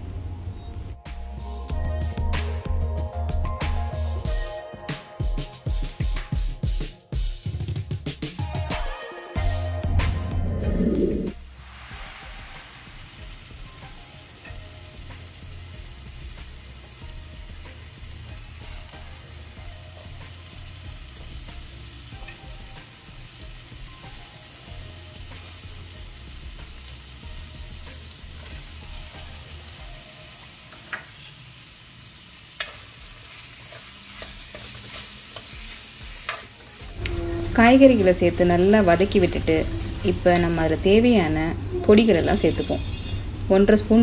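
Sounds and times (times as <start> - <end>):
vegetables sizzling in oil: 10.6 - 44.0.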